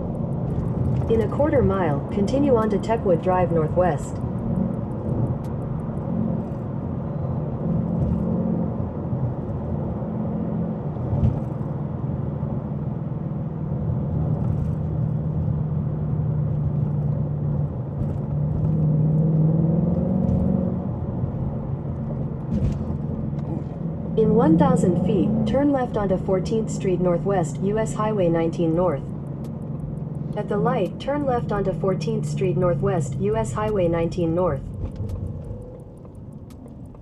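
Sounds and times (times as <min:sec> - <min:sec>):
car engine cruising: 0:00.0 - 0:37.0
tyre and road noise: 0:00.0 - 0:37.0.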